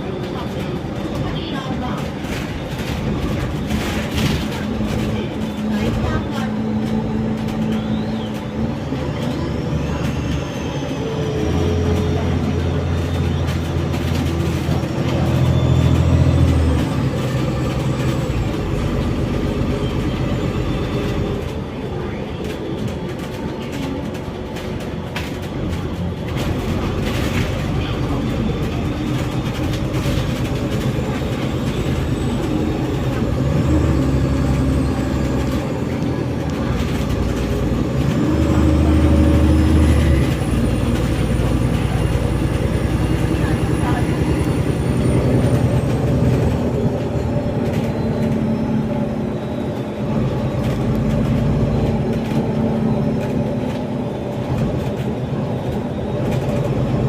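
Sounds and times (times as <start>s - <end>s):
bus engine running: 0.0s - 57.0s
road noise: 0.0s - 57.0s.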